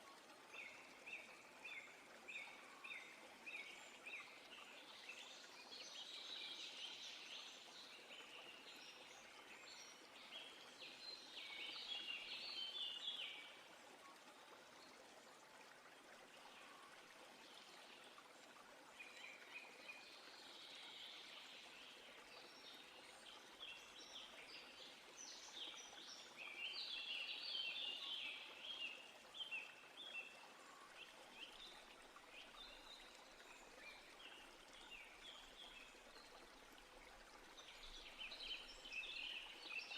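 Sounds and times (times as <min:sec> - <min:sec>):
soft steady hiss: 0:00.0 - 0:39.9.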